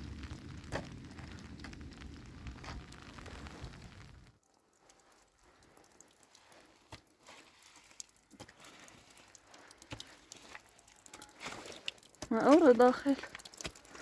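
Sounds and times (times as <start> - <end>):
rain patter: 0.0 - 14.0
drips tapping: 4.4 - 14.0.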